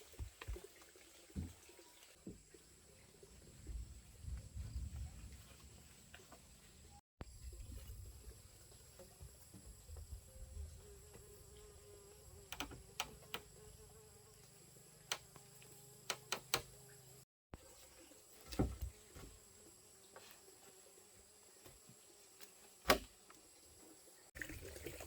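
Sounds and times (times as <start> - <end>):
insects buzzing: 6.6 - 24.3.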